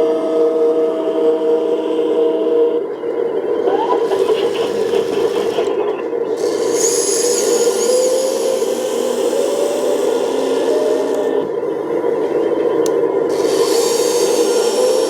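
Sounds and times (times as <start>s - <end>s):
small electric motors whining: 3.6s - 11.8s, 12.8s - 15.0s.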